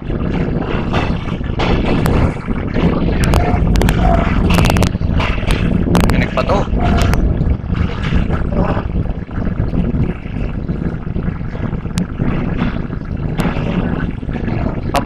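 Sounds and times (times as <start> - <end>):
train rumbling on track: 0.0 - 10.2.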